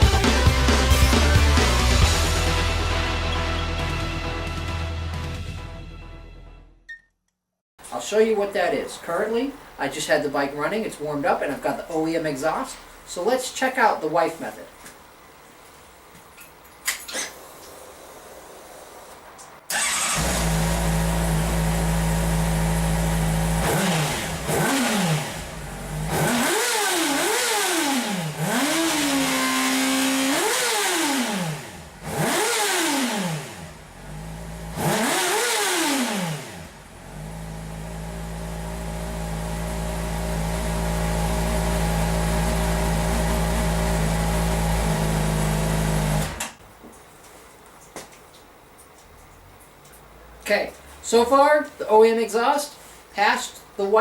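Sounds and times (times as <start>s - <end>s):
motorcycle engine idling and revving: 19.8s - 46.4s.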